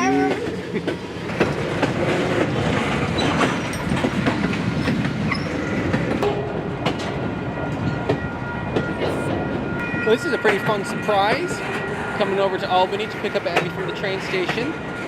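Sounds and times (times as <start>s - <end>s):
freight cars rumbling on rails: 0.0s - 15.0s
wheels clicking over rail joints: 0.1s - 8.9s, 12.7s - 15.0s.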